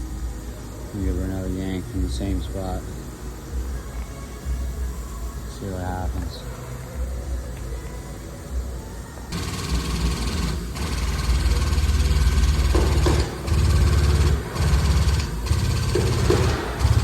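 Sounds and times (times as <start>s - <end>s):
hydraulic pump pulsing: 9.3s - 17.0s.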